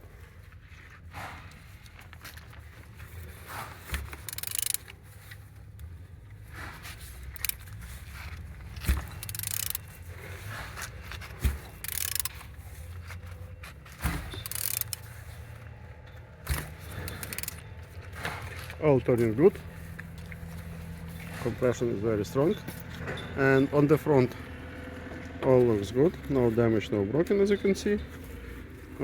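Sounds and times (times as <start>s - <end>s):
ratchet clicking: 3.9s - 5.0s, 7.2s - 7.8s, 8.8s - 10.0s, 11.4s - 12.5s, 14.0s - 15.3s, 16.4s - 17.7s.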